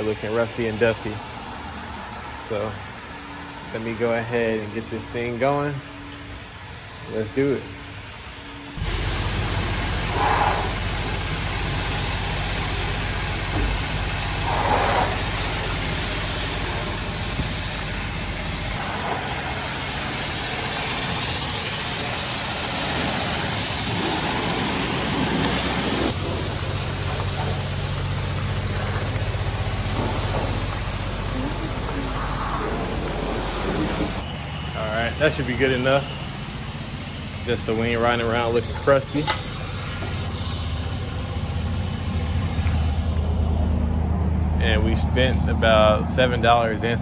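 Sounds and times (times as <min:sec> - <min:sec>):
pressure wand spraying water: 0:08.8 - 0:44.0.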